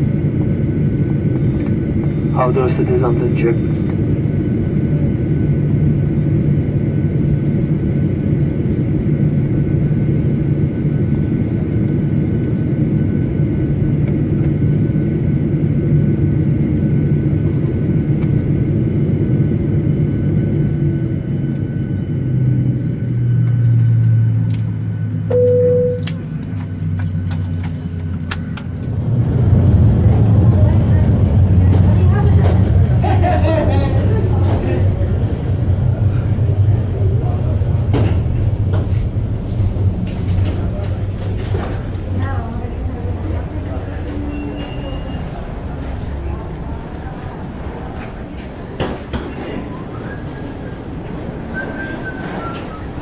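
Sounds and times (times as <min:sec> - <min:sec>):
aircraft cabin hum: 0:00.0 - 0:53.0
short single tone: 0:25.3 - 0:26.2.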